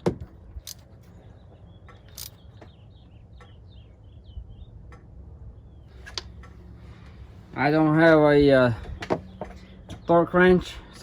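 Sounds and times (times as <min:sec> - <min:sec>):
bird chirping: 0:01.0 - 0:06.1.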